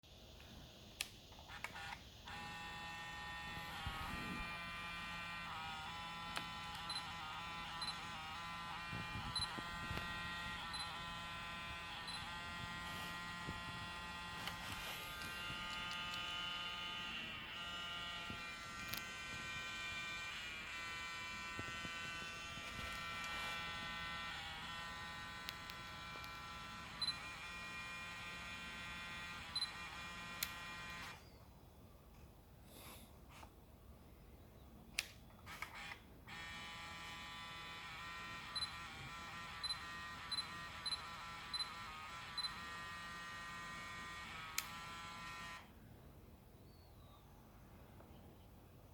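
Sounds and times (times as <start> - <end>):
lens autofocus motor buzzing: 1.4 - 31.2, 35.4 - 45.7
small clicks: 14.4 - 16.3, 34.9 - 36.6, 44.2 - 45.6.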